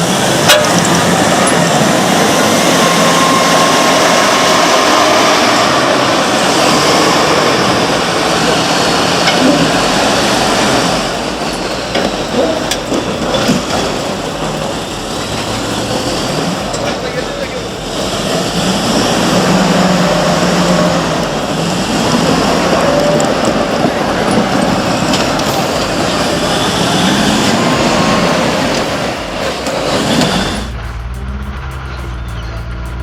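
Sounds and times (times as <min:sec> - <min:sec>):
sharp knocks or clanks: 0:00.0 - 0:02.8
heavy construction machinery running: 0:00.0 - 0:33.0.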